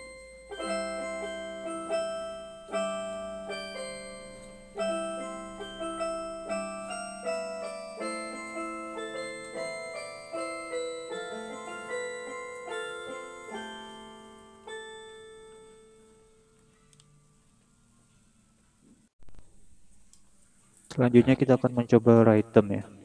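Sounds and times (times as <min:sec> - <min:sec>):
synthesizer keyboard melody: 0:00.0 - 0:17.4.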